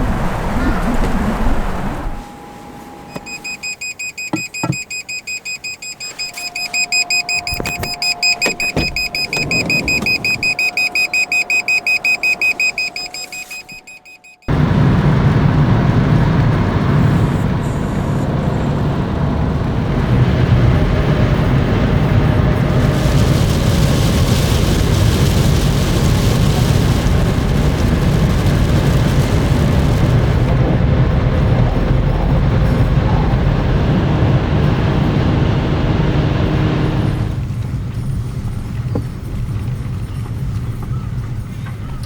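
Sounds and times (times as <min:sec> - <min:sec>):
strong wind: 0:00.0 - 0:02.5, 0:14.5 - 0:42.0
car noise: 0:00.0 - 0:42.0
alarm high-pitched beeps: 0:03.1 - 0:14.5.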